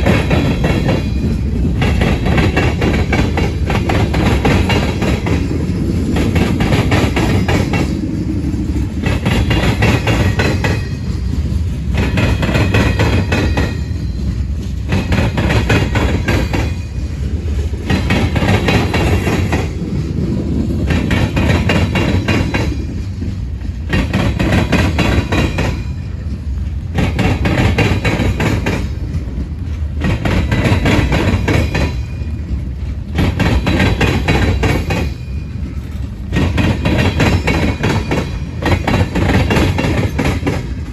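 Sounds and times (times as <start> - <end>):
freight train rumbling: 0.0 - 40.9.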